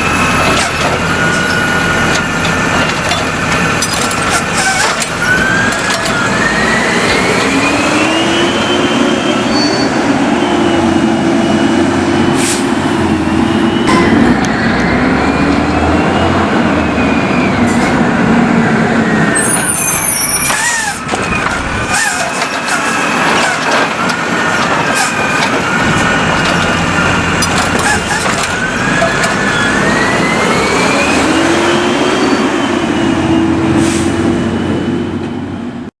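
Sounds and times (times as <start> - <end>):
refuse truck engine: 0.0 - 35.9
clanks and knocks: 0.2 - 6.5, 20.4 - 30.0.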